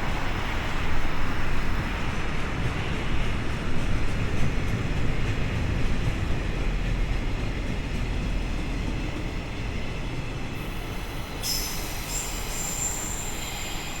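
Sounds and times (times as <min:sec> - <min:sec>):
freight train rumbling past: 0:00.0 - 0:14.0
high wheel squeal: 0:10.6 - 0:14.0.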